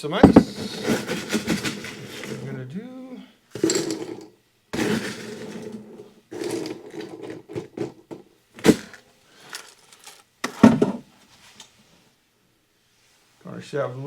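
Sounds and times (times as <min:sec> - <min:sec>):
ice rattling into glass: 0:00.2 - 0:02.5, 0:03.6 - 0:08.0, 0:08.6 - 0:10.8
loud knocks: 0:00.2 - 0:02.6.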